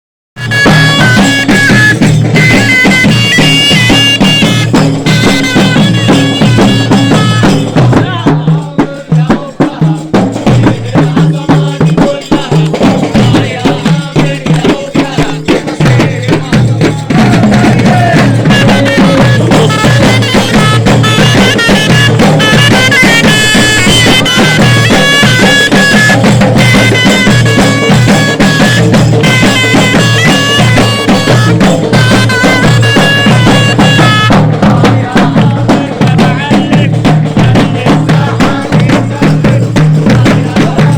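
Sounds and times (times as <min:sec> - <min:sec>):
bagpipes playing melody: 0:00.4 - 0:07.6, 0:18.6 - 0:34.6
drums: 0:00.4 - 0:40.9.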